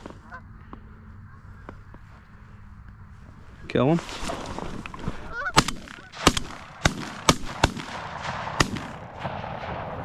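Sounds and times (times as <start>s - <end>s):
geese honking: 0.2s - 2.2s, 5.1s - 6.8s
shotguns firing: 5.5s - 10.0s.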